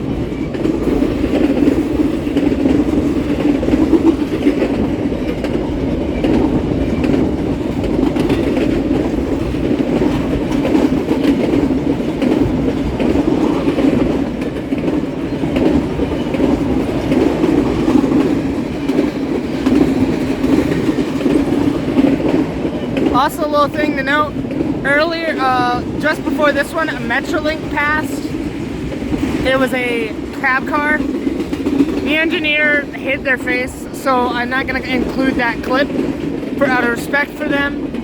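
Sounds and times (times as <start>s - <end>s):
freight train rolling past: 0.0s - 38.0s
wheels clacking over rail joints: 0.0s - 38.0s.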